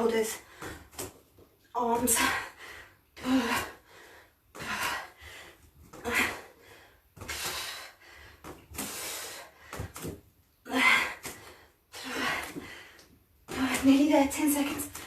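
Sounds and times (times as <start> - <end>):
woman breathing hard: 2.2 - 13.2.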